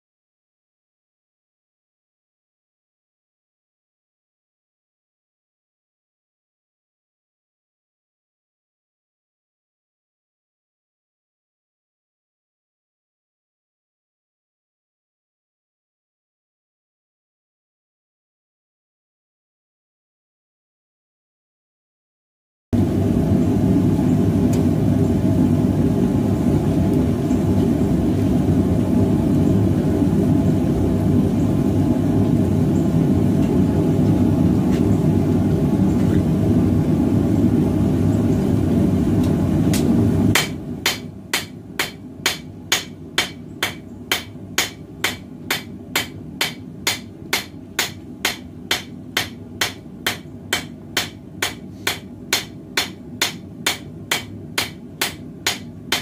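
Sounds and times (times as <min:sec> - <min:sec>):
hammer striking metal on anvil: 0:40.4 - 0:56.0.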